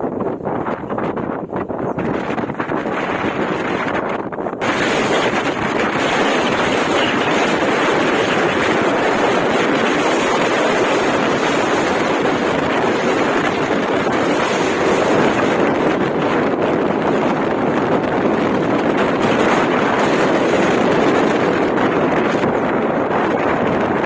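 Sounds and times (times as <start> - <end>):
strong wind on microphone: 0.0 - 24.0.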